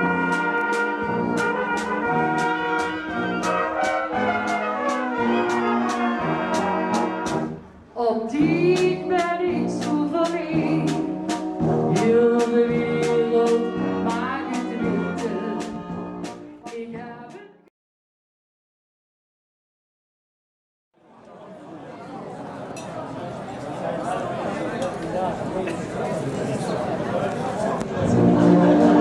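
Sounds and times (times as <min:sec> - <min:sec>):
brass band playing: 0:00.0 - 0:07.7, 0:08.6 - 0:16.9, 0:28.0 - 0:29.0.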